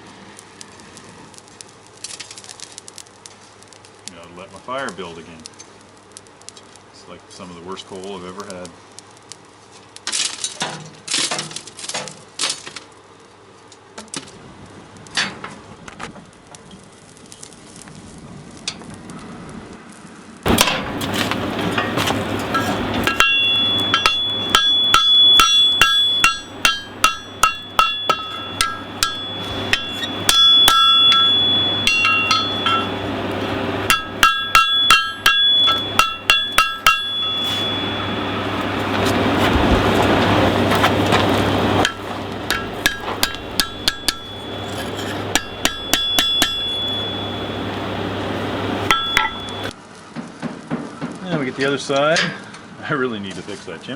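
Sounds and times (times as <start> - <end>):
forge blower rush and hum: 20.4 - 49.7
hammer striking metal on anvil: 20.5 - 39.4, 41.1 - 49.7.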